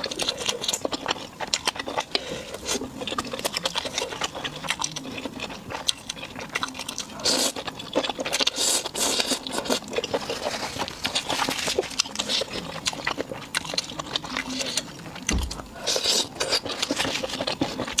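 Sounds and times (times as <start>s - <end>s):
wet chewing smacks: 0.0s - 18.0s
low thump: 15.3s - 15.8s.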